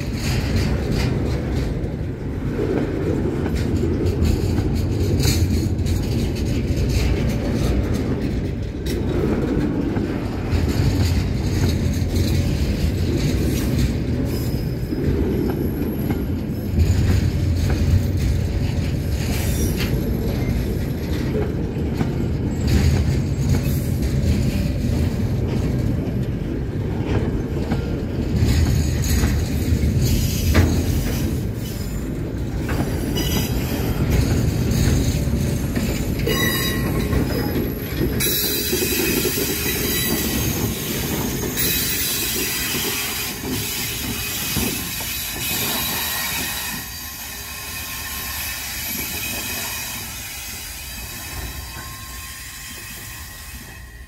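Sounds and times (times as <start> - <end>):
high-pitched wheel squeal: 36.2 - 54.0.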